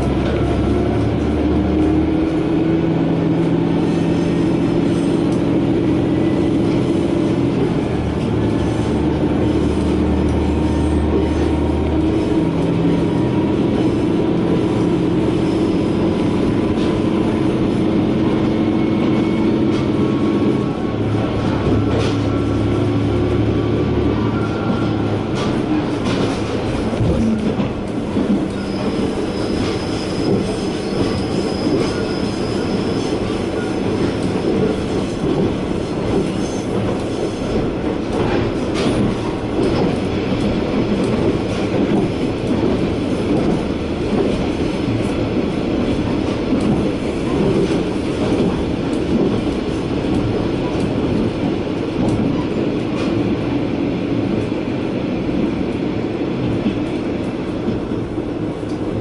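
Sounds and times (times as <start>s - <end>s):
rail joint clicks: 0.0s - 59.0s
wheel on rail rumble: 0.0s - 59.0s
high wheel squeal: 15.3s - 16.3s, 28.5s - 34.3s.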